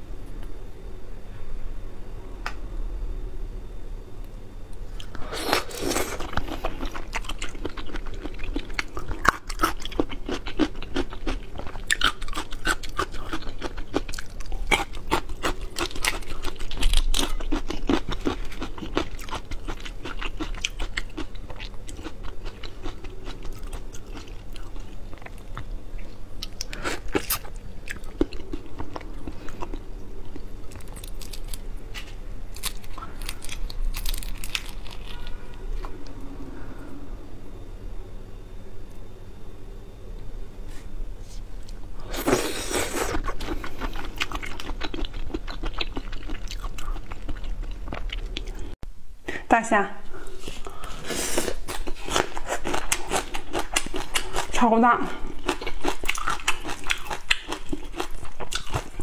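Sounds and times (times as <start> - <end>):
chewing and crunching shrimp: 5.0 - 36.0, 41.7 - 48.8, 50.4 - 59.0.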